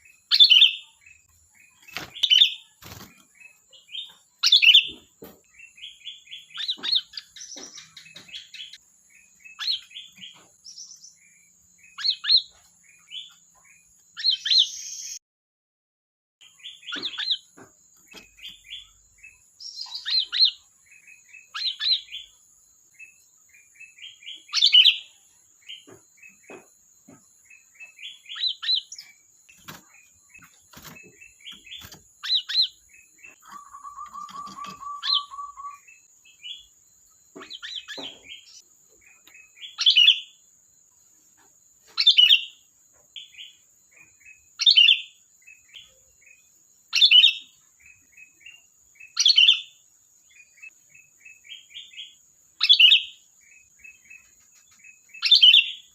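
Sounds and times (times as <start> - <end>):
bird chirping and chattering: 0.0 - 15.2, 16.5 - 22.4, 23.0 - 40.4, 50.3 - 55.9.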